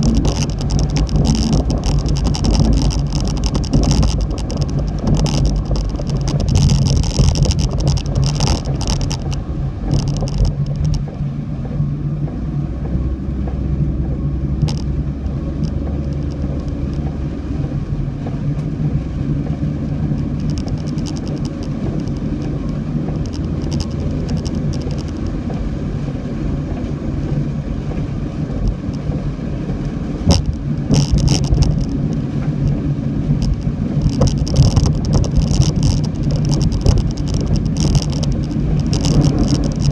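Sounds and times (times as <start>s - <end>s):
crackling hiss: 0.0s - 11.1s, 30.2s - 39.9s
car engine and road rumble: 0.0s - 39.9s.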